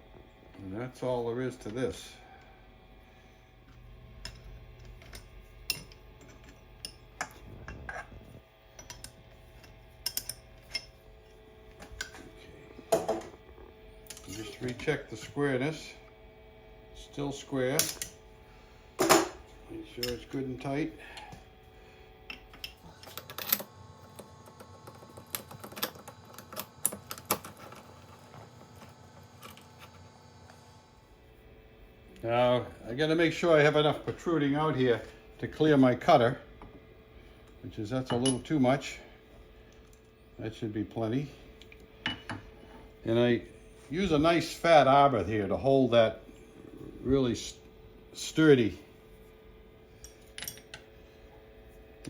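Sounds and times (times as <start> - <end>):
steady low hum: 0.0 - 52.0
metal tools clicking and clinking: 8.8 - 11.0, 20.0 - 20.4, 38.1 - 38.5, 50.0 - 50.8.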